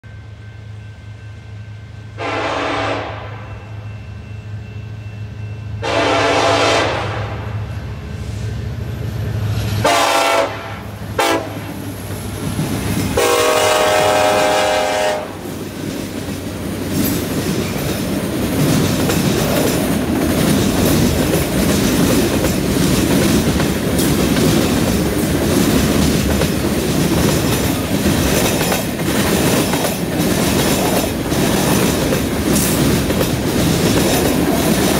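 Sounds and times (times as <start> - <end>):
locomotive air horn blasts: 2.2 - 3.6, 5.8 - 7.6, 9.8 - 11.8, 13.2 - 15.4
freight cars rumbling: 7.1 - 14.5, 15.2 - 34.9
wheels clacking over rail joints: 15.4 - 34.9.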